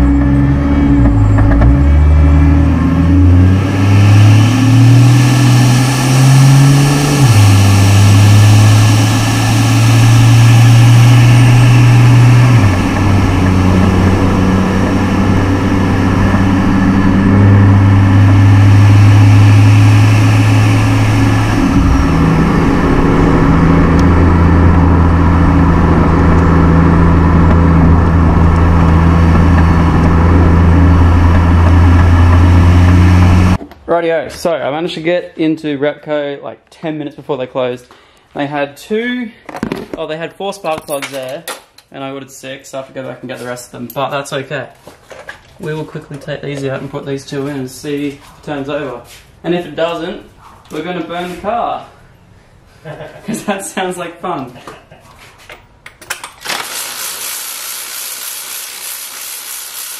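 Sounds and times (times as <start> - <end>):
car engine driving: 0.0 - 33.6.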